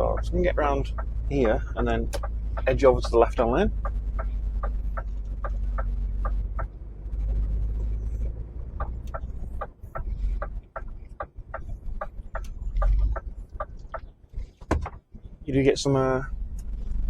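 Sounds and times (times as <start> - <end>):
turn indicator ticking: 0.0 - 16.9
diesel engine rumble: 0.0 - 17.0.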